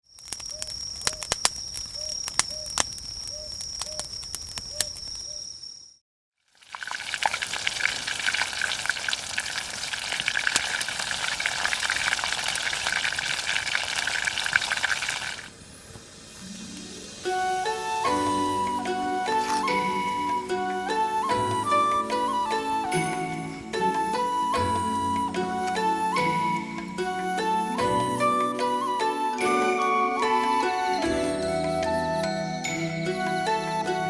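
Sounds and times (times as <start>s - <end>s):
sharp pops and crackles: 0.1s - 5.3s
food deep-frying in hot oil: 6.5s - 18.0s
steady high tone: 16.2s - 34.0s.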